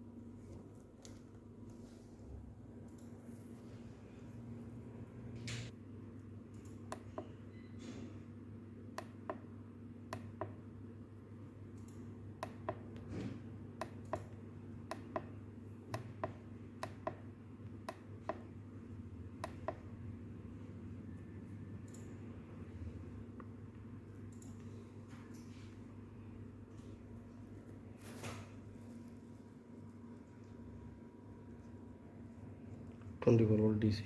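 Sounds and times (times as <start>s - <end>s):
low electrical hum: 0.0s - 34.0s
small sharp clicks: 11.7s - 12.7s.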